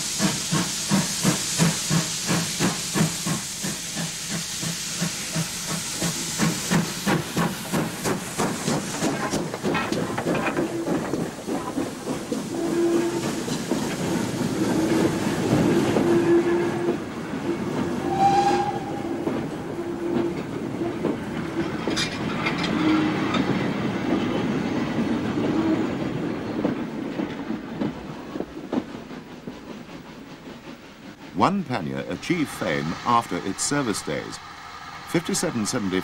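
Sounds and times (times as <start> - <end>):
wagon wheels clattering over rail joints: 9.0 - 12.4.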